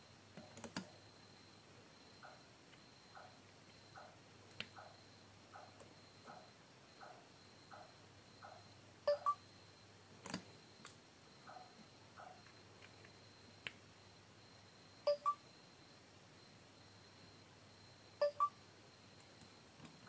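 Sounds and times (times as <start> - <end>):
two-note electronic beeps: 9.1 - 9.4, 15.1 - 15.4, 18.2 - 18.6.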